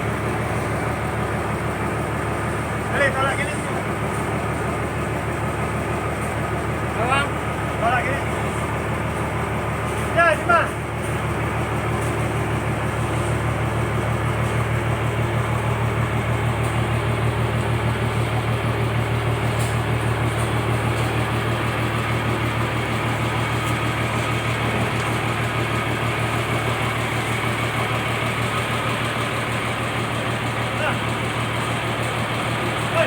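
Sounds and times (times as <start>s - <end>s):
boat engine throbbing: 0.0s - 33.0s.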